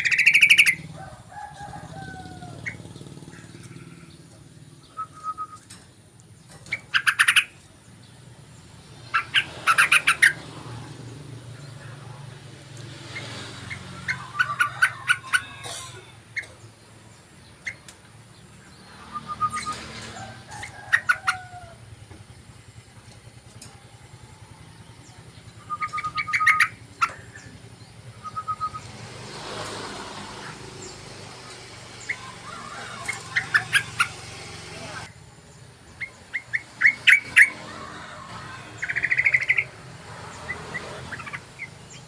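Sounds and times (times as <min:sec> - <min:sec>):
bird chirping: 0:00.0 - 0:00.9, 0:02.4 - 0:15.5, 0:16.3 - 0:21.6, 0:22.2 - 0:29.4, 0:30.2 - 0:37.6, 0:38.7 - 0:42.0
bird whistled notes: 0:04.8 - 0:05.7, 0:19.0 - 0:19.9, 0:28.1 - 0:28.9.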